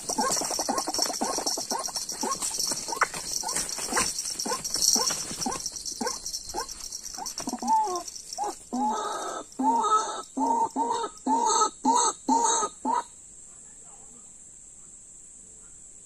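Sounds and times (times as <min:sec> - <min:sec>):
steady high hiss: 0:13.0 - 0:16.0.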